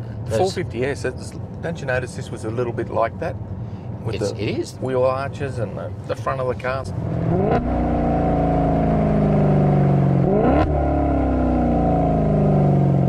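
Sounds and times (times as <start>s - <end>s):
car engine revving: 6.4s - 13.0s.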